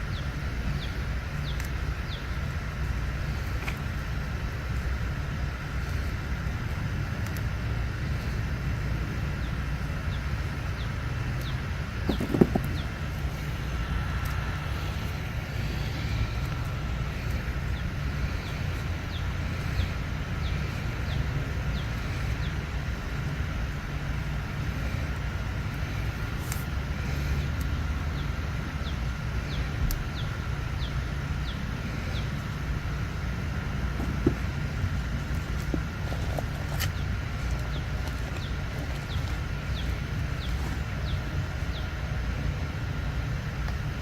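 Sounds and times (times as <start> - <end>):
faint high hum: 0.0 - 44.0
low outdoor rumble: 0.0 - 44.0
bird chirping: 36.1 - 42.1.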